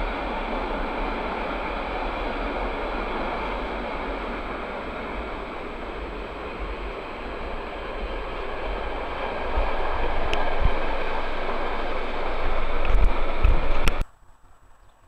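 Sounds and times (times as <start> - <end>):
freight train wheels on rail: 0.0 - 14.1.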